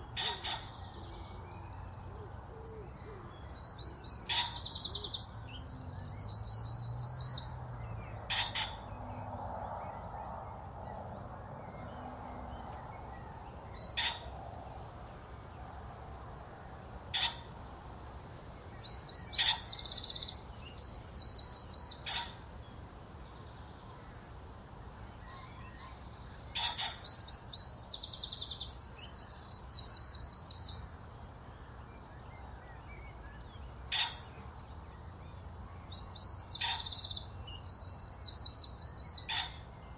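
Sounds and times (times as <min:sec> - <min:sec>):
songbirds trilling: 0:00.0 - 0:39.9.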